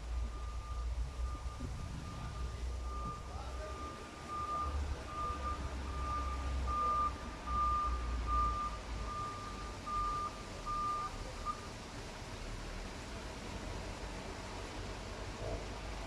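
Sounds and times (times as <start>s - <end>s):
reversing alarm beeping: 0.0s - 11.6s
diesel engine rumble: 0.0s - 16.0s.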